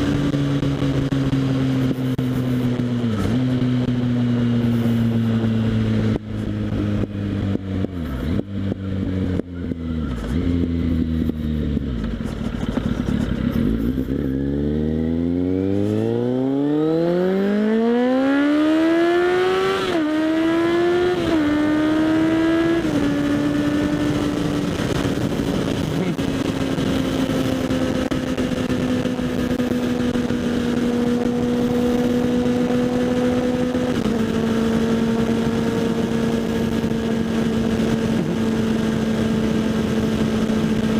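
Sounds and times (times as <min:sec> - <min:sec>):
gear changes: 0:00.0 - 0:40.9
motorcycle engine accelerating: 0:00.0 - 0:40.9
wind rush: 0:21.0 - 0:32.1.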